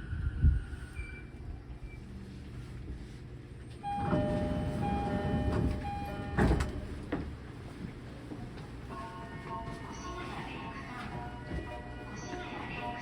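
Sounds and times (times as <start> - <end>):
two-tone door chime: 3.8 - 7.0
sliding doors closing with a thud: 3.8 - 7.4.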